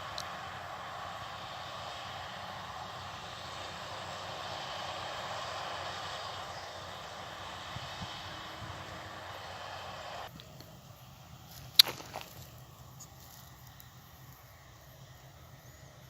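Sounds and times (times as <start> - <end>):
baler working: 0.0 - 10.8
combine harvester engine drone: 0.0 - 16.0.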